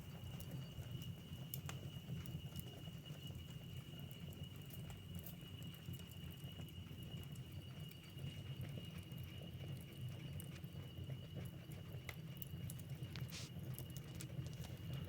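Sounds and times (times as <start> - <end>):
low rumble of flames: 0.0 - 15.0
wood fire crackling: 0.0 - 15.0
fire pops: 12.7 - 15.0.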